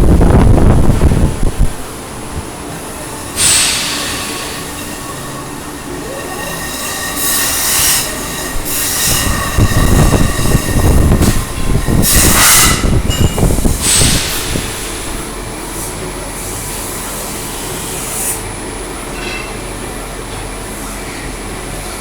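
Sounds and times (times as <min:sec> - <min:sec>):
stepper motors whining: 0:02.2 - 0:16.1
hissing bursts: 0:02.9 - 0:15.2.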